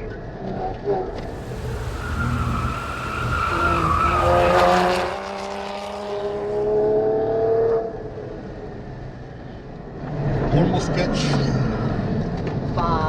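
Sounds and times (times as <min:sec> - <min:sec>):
tyres squealing: 0:01.2 - 0:06.4
engine revving up: 0:01.2 - 0:07.5.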